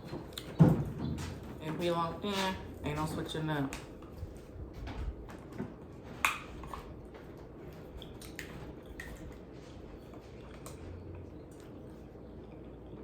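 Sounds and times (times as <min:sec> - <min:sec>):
chewing and biting food: 0:05.3 - 0:13.0.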